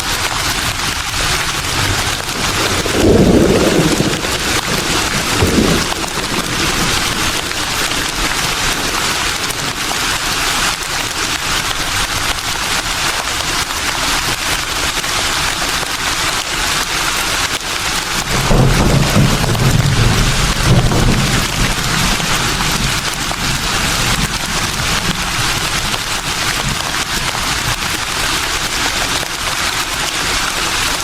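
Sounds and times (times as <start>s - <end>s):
breeze rustling leaves: 0.0s - 31.0s
low gusts of wind: 0.5s - 10.7s, 18.0s - 28.7s.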